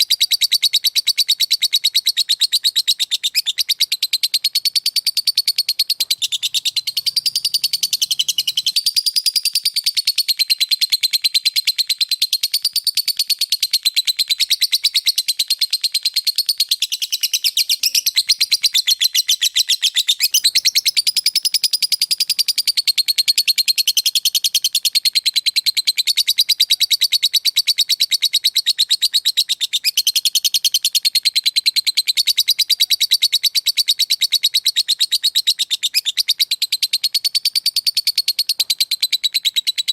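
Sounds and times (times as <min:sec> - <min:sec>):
bird chattering trill: 0:00.0 - 0:10.7, 0:14.1 - 0:31.3.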